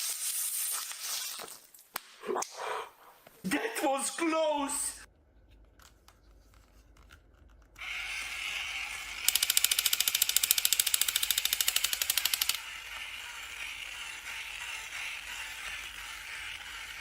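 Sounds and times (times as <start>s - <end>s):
rapid sharp clicks: 9.3s - 12.6s.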